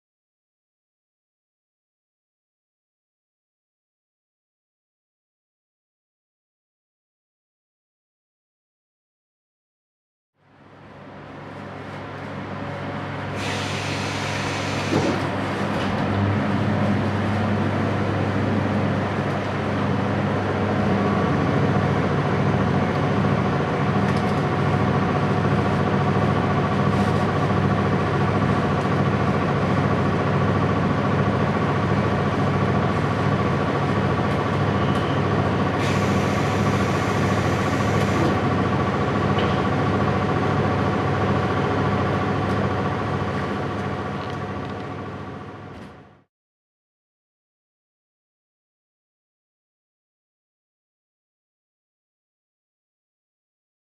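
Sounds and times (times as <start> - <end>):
compressed air hiss: 13.4 - 15.2.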